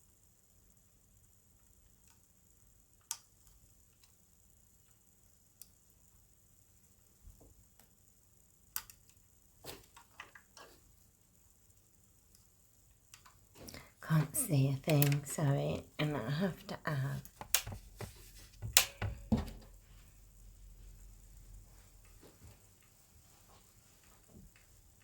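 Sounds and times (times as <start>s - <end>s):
soft knocks: 17.7s - 19.8s.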